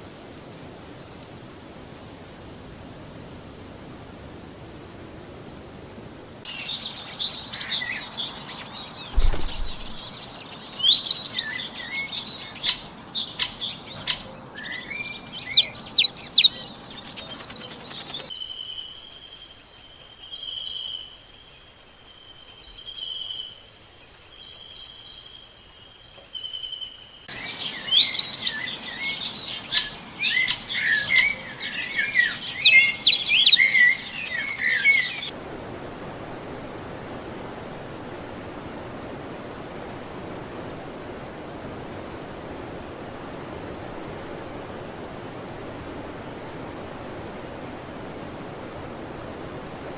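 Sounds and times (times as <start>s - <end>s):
songbirds chirping: 6.4s - 35.4s.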